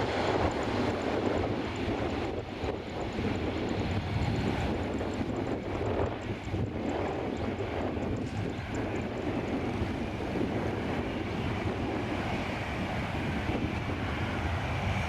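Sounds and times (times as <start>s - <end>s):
jet engines running: 0.0s - 15.0s
wind buffeting microphone: 0.0s - 15.0s.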